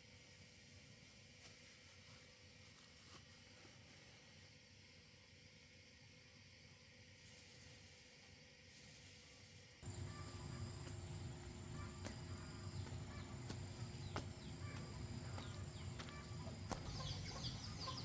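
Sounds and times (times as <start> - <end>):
birds chirping: 9.8 - 18.0
insects trilling: 9.8 - 18.0.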